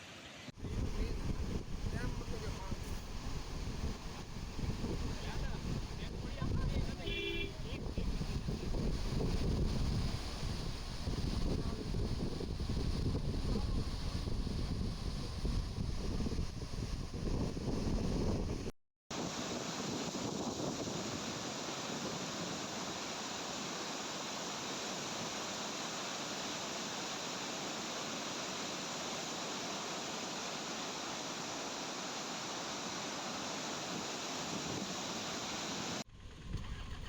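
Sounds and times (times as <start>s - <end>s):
water rushing through spillway: 19.2s - 36.0s.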